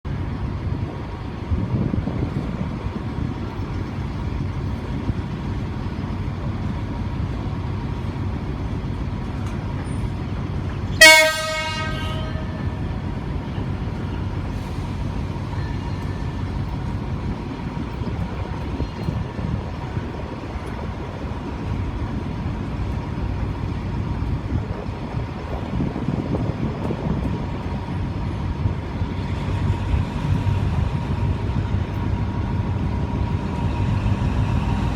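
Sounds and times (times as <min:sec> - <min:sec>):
train engine rumbling: 0:00.0 - 0:34.9
locomotive horn blast: 0:11.0 - 0:13.0.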